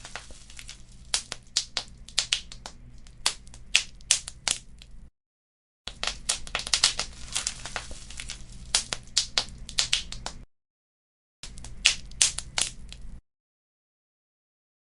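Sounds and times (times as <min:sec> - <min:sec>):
fireplace fire crackling: 0:00.0 - 0:05.0, 0:05.9 - 0:10.4, 0:11.5 - 0:13.2.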